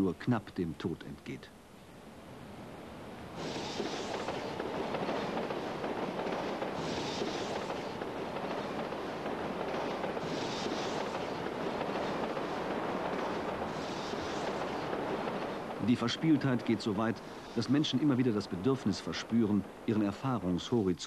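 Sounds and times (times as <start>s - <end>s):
electric train running noise: 3.2s - 19.9s
brief high hiss: 3.4s - 4.5s.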